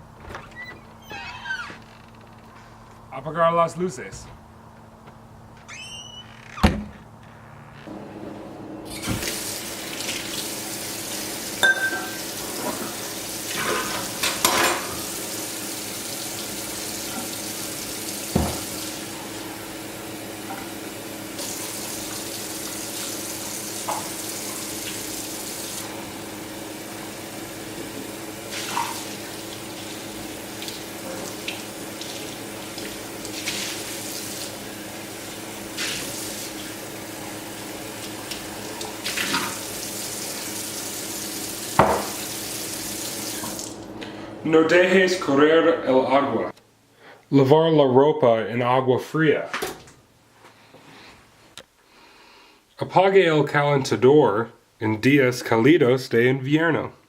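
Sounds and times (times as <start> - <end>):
tap water running into sink: 8.9 - 19.5, 21.4 - 26.9, 27.6 - 43.8.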